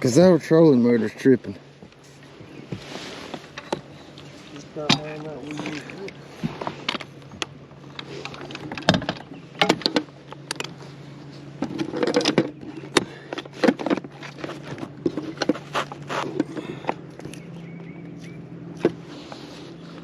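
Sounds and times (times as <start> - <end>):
steady low hum: 0.0 - 20.0
fishing gear knocking and rattling: 4.6 - 10.9, 11.5 - 17.3.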